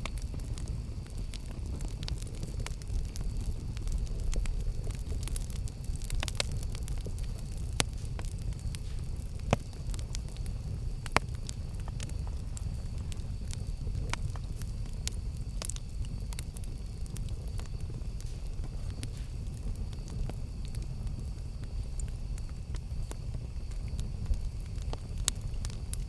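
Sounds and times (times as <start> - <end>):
campfire crackling and popping: 0.0 - 26.0
low rumble of flames: 0.0 - 26.0.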